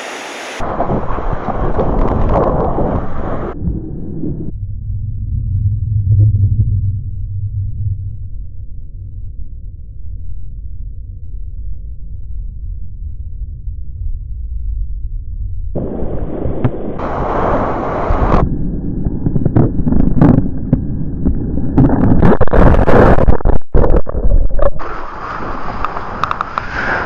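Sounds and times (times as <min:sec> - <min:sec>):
rushing surf water: 0:00.0 - 0:03.6, 0:15.8 - 0:18.4, 0:22.0 - 0:27.0
wind buffeting microphone: 0:00.5 - 0:04.5, 0:15.8 - 0:27.0.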